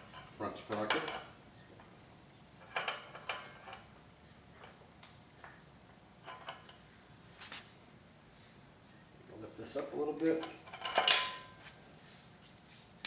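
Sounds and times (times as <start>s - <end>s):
drive chain clinking: 2.6s - 3.9s, 10.3s - 11.5s.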